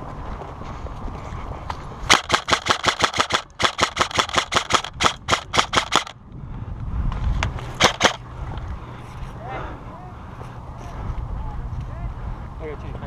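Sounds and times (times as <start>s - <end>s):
airsoft gun firing rapid shots: 2.1s - 6.2s, 7.8s - 8.2s.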